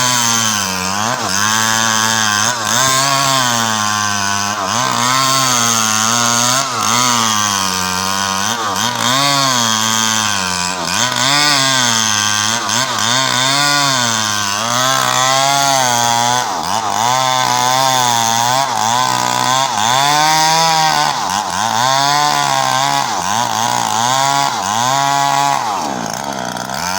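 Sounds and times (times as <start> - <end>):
chainsaw cutting wood: 0.0 - 26.9.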